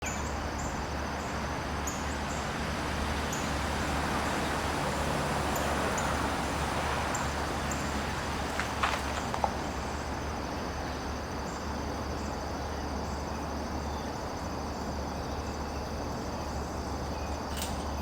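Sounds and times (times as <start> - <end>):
insects trilling: 0.0 - 17.8.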